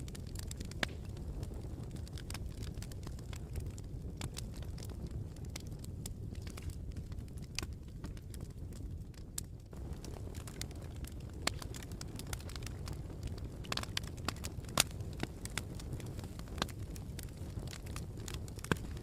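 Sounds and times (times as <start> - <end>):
campfire crackling: 0.0 - 19.0
low rumble of fire: 0.0 - 19.0
sharp pops and snaps: 0.1 - 4.9, 9.7 - 19.0.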